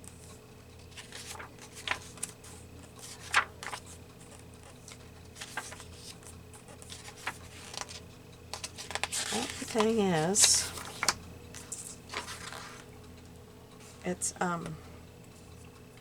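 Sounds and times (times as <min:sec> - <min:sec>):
faint steady hum: 0:00.0 - 0:16.0
paper rustling: 0:00.8 - 0:12.9.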